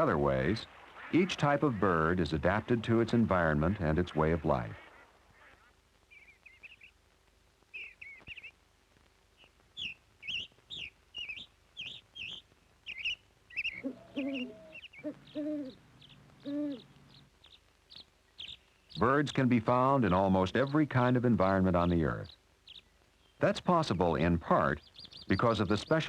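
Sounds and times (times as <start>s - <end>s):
low hooting bird calls: 9.4s - 20.9s
high bird chirping: 9.4s - 26.0s.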